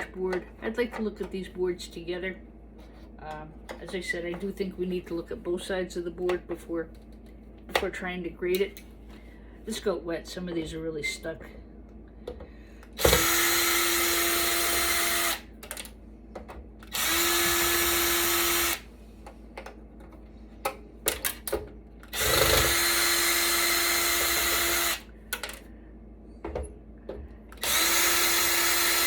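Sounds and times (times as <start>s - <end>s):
power drill running: 13.0s - 15.5s, 16.8s - 18.9s, 22.1s - 25.1s, 27.6s - 29.0s
clicks and knocks of parts: 15.6s - 16.9s, 19.2s - 22.7s, 25.3s - 25.7s.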